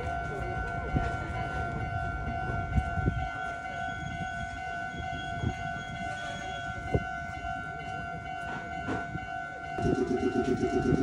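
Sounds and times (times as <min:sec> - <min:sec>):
electric train rumbling: 0:00.0 - 0:11.0
high electronic two-pitch tone: 0:09.8 - 0:11.0.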